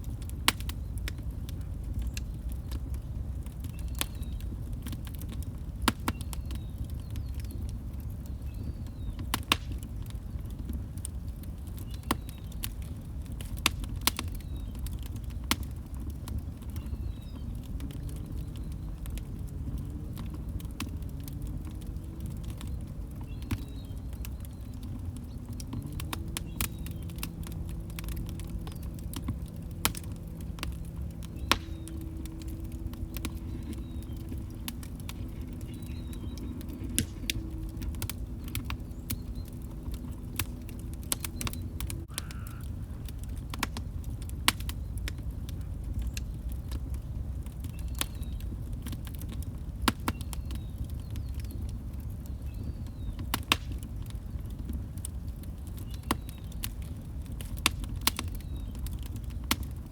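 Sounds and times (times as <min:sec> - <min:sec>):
fire pops and snaps: 0:00.0 - 0:59.9
log fire crackling: 0:00.0 - 0:59.9.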